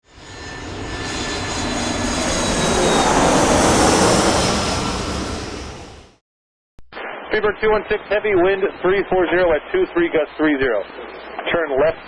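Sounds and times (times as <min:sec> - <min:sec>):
jet aircraft passing overhead: 0:00.0 - 0:06.2.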